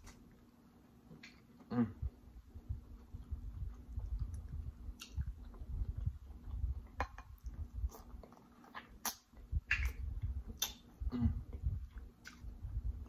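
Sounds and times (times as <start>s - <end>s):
person humming: 1.7s - 2.1s, 11.0s - 11.5s
close chewing: 2.6s - 13.0s
wet mouth clicks and lip smacks: 3.7s - 8.1s, 8.7s - 10.9s.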